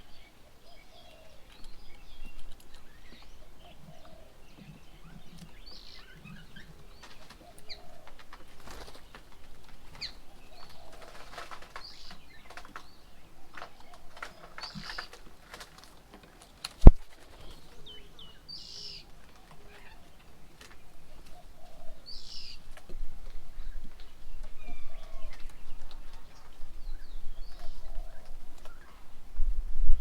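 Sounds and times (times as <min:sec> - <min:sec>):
birds giving high calls: 0:00.0 - 0:15.8, 0:17.2 - 0:29.2
wing flutter: 0:05.3 - 0:18.2.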